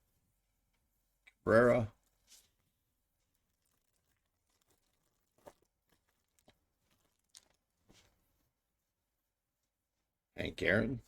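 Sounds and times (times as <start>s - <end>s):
foil wrappers crackling: 3.2s - 7.8s.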